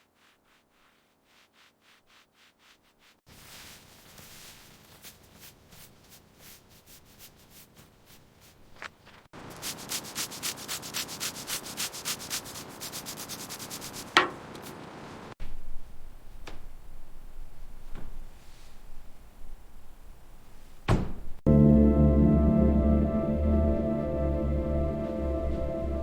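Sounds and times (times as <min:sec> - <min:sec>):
abrasive sanding strokes: 0:00.0 - 0:14.8.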